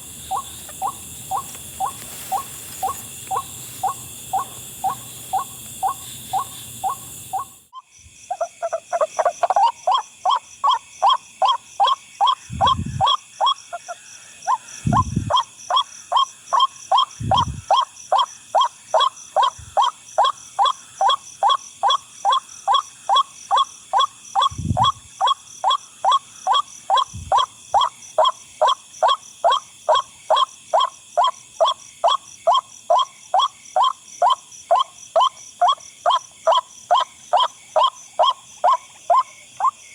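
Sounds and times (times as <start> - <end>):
waterhen calling: 0.0 - 7.6.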